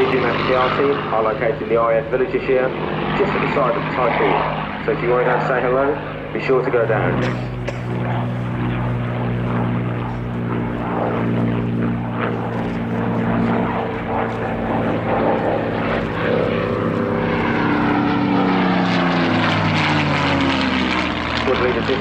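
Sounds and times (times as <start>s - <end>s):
propeller plane flying past: 0.0s - 22.0s.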